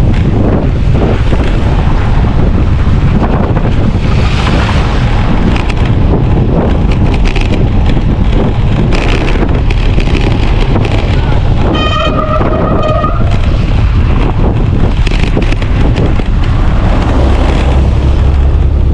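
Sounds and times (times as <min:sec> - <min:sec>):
wind buffeting microphone: 0:00.0 - 0:18.9
scratchy crackles: 0:03.7 - 0:18.3.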